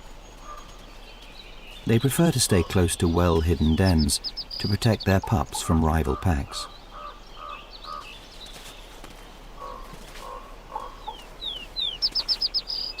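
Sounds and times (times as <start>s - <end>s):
rapid high bird notes: 1.7s - 7.2s.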